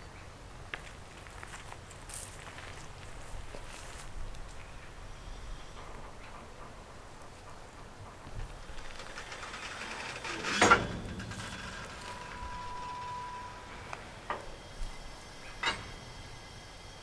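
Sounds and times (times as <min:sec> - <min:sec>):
thin steady squeal: 0:08.5 - 0:17.0
wagon metallic clank with ringing: 0:08.6 - 0:16.4.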